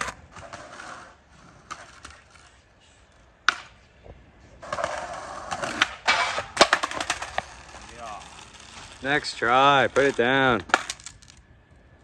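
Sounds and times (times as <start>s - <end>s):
skateboard clack: 0.0s - 2.6s, 3.4s - 3.9s, 4.6s - 11.4s
skateboard wheels rolling on pavement: 0.0s - 12.0s.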